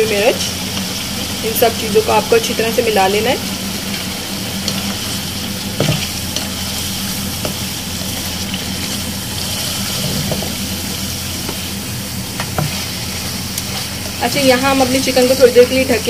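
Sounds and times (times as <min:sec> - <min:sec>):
chicken sizzling in hot oil: 0:00.0 - 0:16.0
spatula scraping pan: 0:03.4 - 0:11.7, 0:12.3 - 0:15.8.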